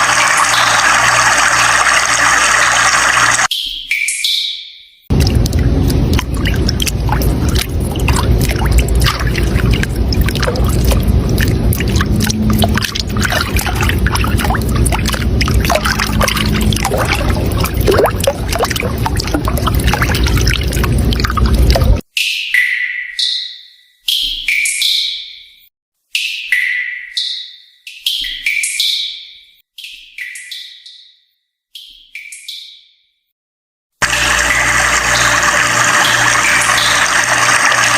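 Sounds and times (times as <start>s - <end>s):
water rushing and splashing: 5.1s - 22.0s.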